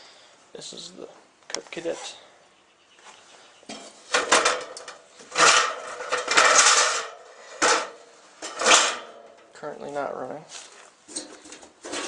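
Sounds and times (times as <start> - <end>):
scraping and rustling: 3.0 - 9.4, 10.4 - 12.0
handling knocks and clunks: 3.7 - 9.5, 10.7 - 12.0.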